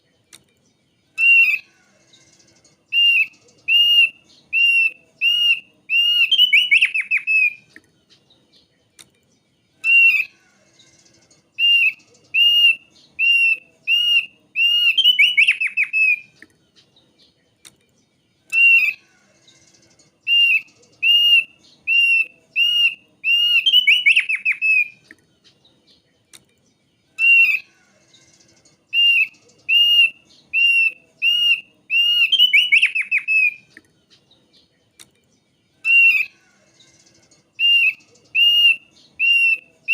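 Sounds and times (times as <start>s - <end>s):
bird whistling with trills: 1.2s - 7.7s, 9.8s - 10.3s, 10.9s - 16.3s, 18.5s - 19.0s, 19.6s - 25.0s, 27.2s - 33.7s, 35.8s - 39.9s.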